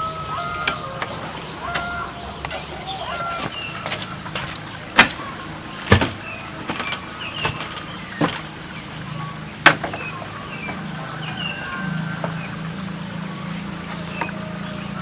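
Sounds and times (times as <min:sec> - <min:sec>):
low steady hum: 0:00.0 - 0:15.0
knocks on bamboo: 0:03.4 - 0:05.2, 0:05.9 - 0:08.4, 0:09.6 - 0:10.0.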